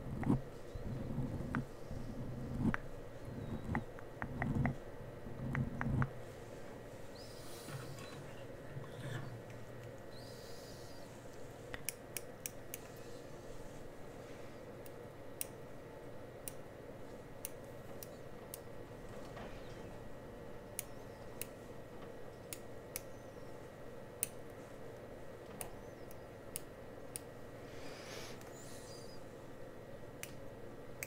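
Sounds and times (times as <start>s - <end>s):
steady low hum: 0.0s - 31.0s
sharp clicks and taps: 3.6s - 4.8s, 5.4s - 6.2s
soft brushing rustle: 6.2s - 8.4s, 12.9s - 14.6s.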